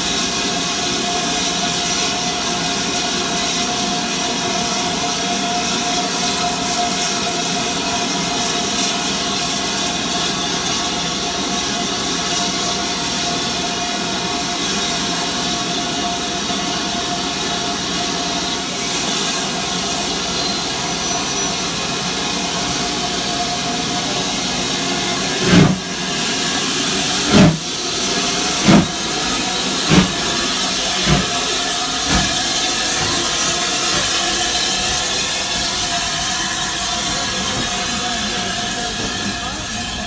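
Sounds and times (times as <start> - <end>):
steam hissing: 0.0 - 40.0
steam locomotive exhaust chuffs: 0.0 - 40.0.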